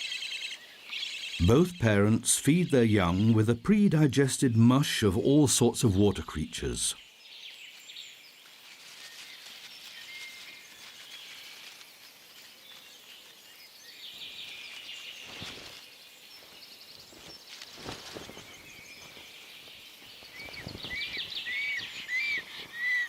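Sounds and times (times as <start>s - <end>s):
small birds chirping and trilling: 0.0s - 4.2s, 5.1s - 23.0s
soft rustles: 8.3s - 13.5s, 14.3s - 21.9s.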